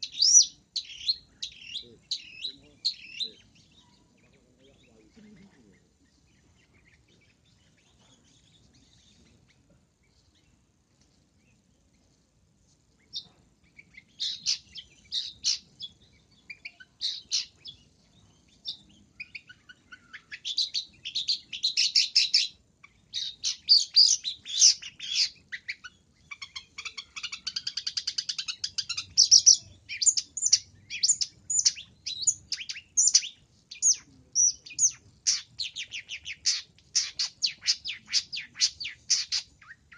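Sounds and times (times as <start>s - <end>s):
bird singing sharp high chirps: 0.0s - 5.8s, 13.1s - 39.9s.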